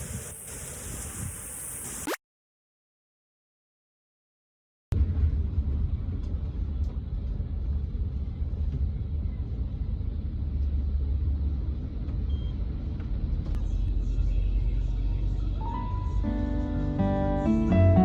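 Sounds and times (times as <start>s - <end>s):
vehicle rumble heard from inside: 4.9s - 18.0s.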